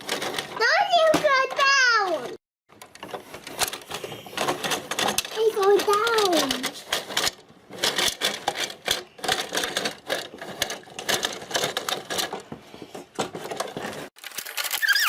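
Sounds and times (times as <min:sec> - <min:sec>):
plastic toy lift clicking: 0:02.8 - 0:12.4.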